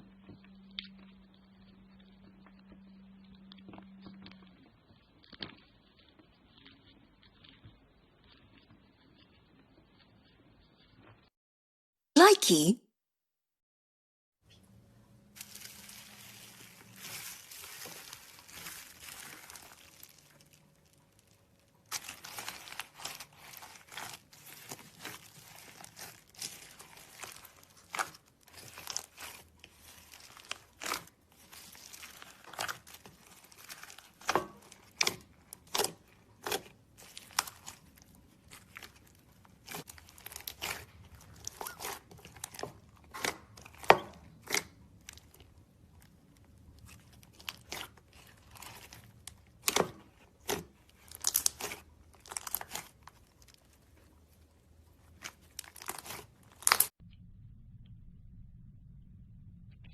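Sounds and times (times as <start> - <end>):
slime crinkling rustle: 15.3 - 57.0.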